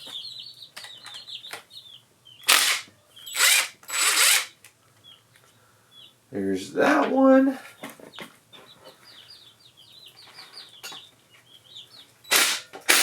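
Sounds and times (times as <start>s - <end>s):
birds chirping faintly: 0.0s - 12.9s
cordless power tool: 2.5s - 4.5s, 12.3s - 13.0s.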